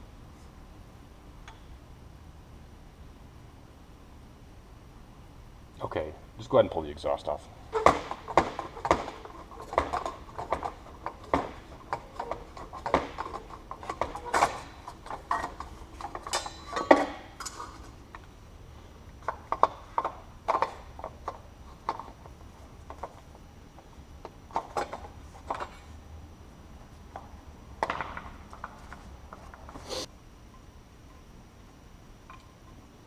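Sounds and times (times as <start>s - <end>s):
metallic clanks of hand tools: 11.3s - 17.8s.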